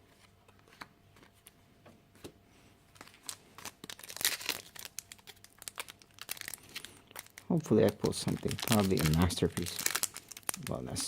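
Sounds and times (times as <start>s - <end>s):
foil wrapper crinkling: 3.0s - 11.0s.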